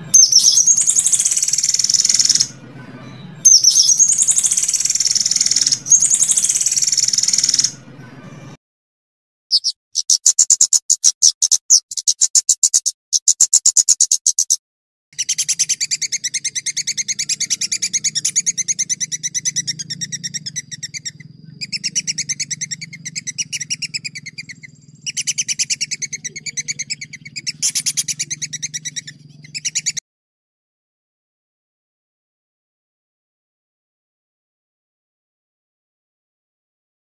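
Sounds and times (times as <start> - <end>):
songbird rapid trill: 0.0 - 7.8, 9.5 - 14.6, 15.2 - 30.0
faint low hum: 15.2 - 30.0.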